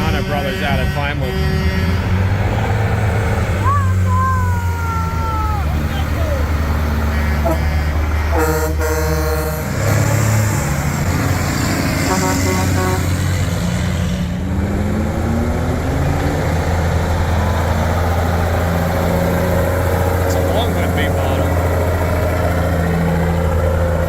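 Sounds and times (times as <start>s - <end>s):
truck horn toot: 0.0s - 2.6s, 5.7s - 13.6s
diesel truck engine accelerating: 0.0s - 24.0s.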